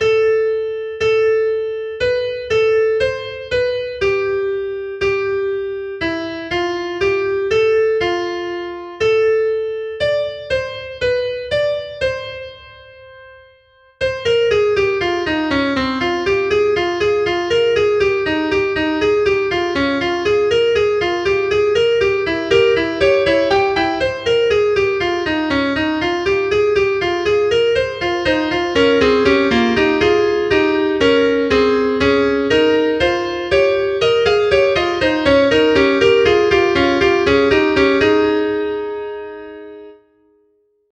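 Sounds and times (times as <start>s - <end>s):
piano music: 14.1s - 40.0s.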